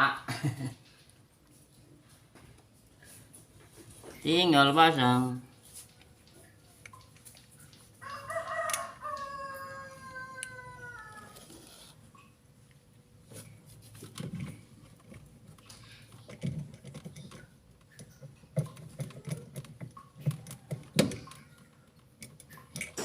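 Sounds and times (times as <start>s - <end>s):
machine parts clicking and knocking: 14.1s - 23.0s.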